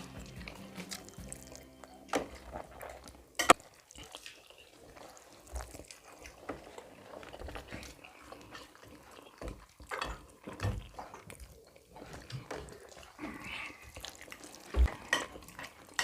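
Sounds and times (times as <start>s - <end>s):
wet chewing: 0.0s - 16.0s
dishes clattering: 9.4s - 11.3s, 14.8s - 16.0s.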